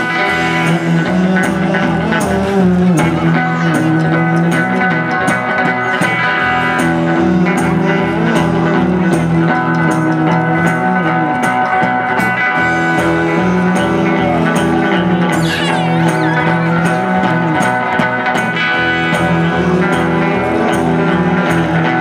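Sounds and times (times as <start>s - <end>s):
electric guitar: 0.0s - 22.0s
drum beat: 13.1s - 21.6s.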